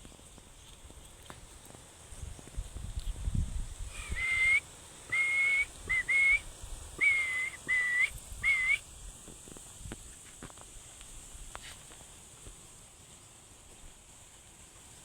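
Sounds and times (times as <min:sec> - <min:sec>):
short whistled notes: 0:03.9 - 0:06.4, 0:07.0 - 0:08.8.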